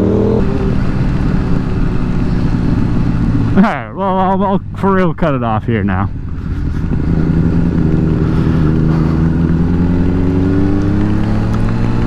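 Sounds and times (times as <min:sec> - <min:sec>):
motorcycle engine accelerating: 0:00.0 - 0:04.9, 0:06.1 - 0:12.0
wind noise: 0:06.1 - 0:12.0.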